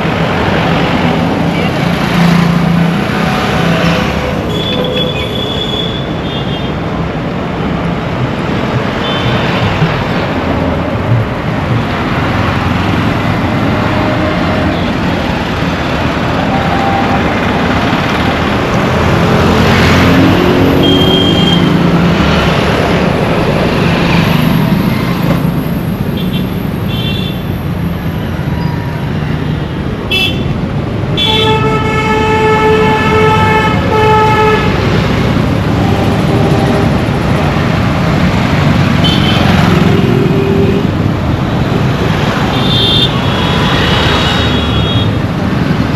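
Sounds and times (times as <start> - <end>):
road traffic noise: 0.0 - 45.9
vehicle horns honking: 3.8 - 6.8, 16.4 - 17.5, 20.7 - 21.8, 30.1 - 30.5, 31.2 - 34.9, 35.8 - 37.1, 39.0 - 41.0, 42.5 - 45.2.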